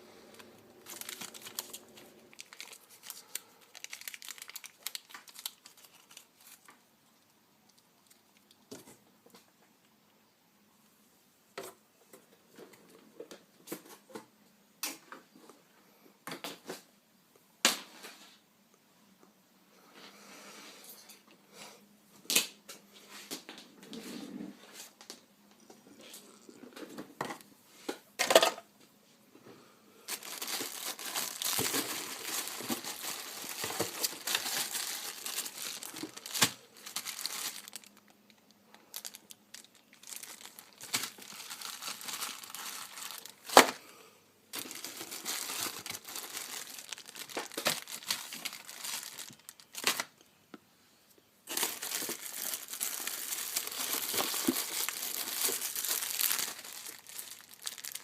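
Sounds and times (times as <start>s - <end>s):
packaging crinkling and tearing: 0.3s - 6.8s, 30.1s - 43.8s, 44.5s - 50.2s, 51.5s - 58.0s
packaging snapping: 0.4s - 6.3s, 30.1s - 37.9s, 44.6s - 50.1s, 51.5s - 58.0s.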